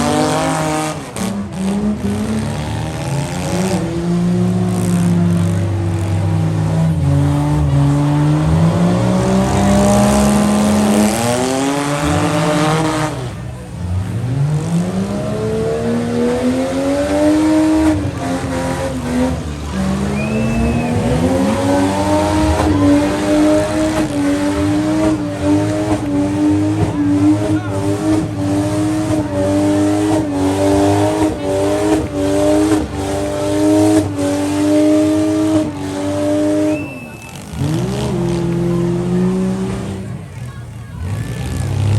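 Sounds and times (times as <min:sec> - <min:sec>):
engine revving hard: 0:00.0 - 0:41.9
vehicles crashing: 0:00.0 - 0:41.9
tyres squealing: 0:15.9 - 0:41.9.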